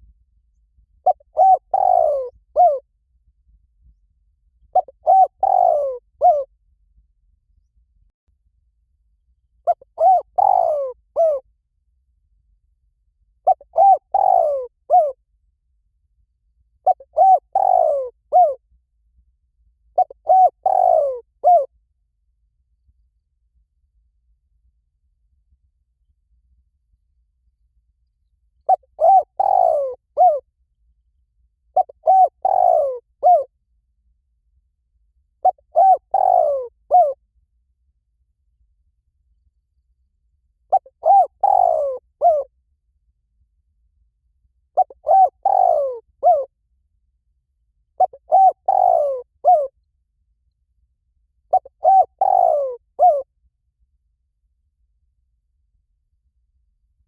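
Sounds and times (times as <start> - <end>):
dove cooing: 1.0 - 2.8, 4.7 - 6.5, 9.7 - 11.4, 13.4 - 15.2, 16.8 - 18.6, 20.0 - 21.7, 28.7 - 30.4, 31.8 - 33.5, 35.4 - 37.2, 40.7 - 42.5, 44.8 - 46.5, 48.0 - 49.7, 51.5 - 53.3.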